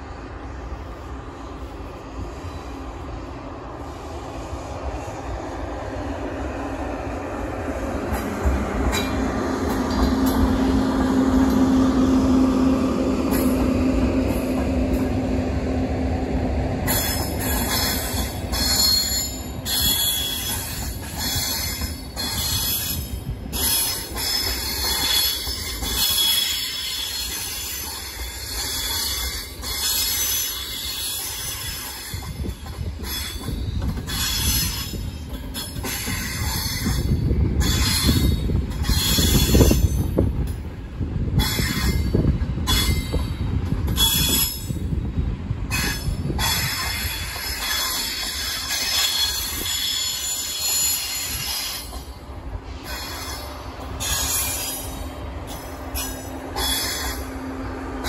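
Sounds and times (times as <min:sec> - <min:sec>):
train wheel squeal: 0:00.0 - 0:15.3, 0:16.8 - 0:58.0
train running on rails: 0:00.0 - 0:58.0.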